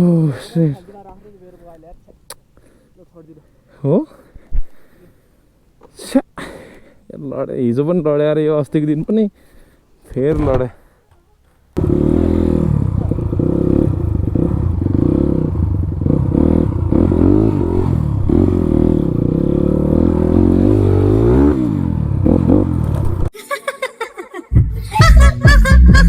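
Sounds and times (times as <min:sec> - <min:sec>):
motorcycle engine revving: 0:11.8 - 0:23.3.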